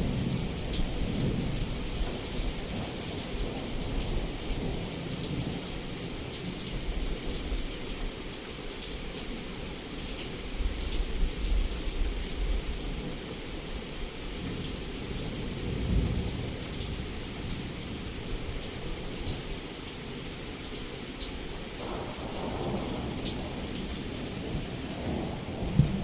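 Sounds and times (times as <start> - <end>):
heavy rain on a window: 0.0 - 26.0
rolling thunder: 21.8 - 26.0.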